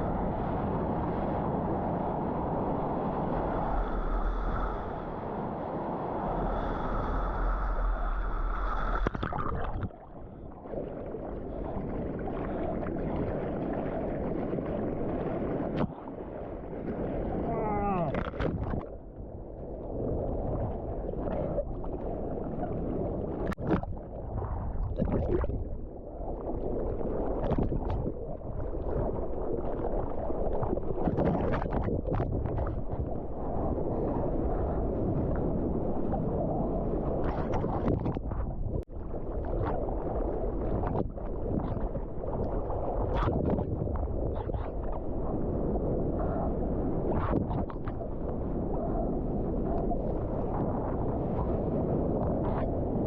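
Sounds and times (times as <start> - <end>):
muffled water sloshing: 6.5 - 53.0
water splashes: 8.6 - 19.1, 24.6 - 25.8
wind buffeting microphone: 16.6 - 53.0.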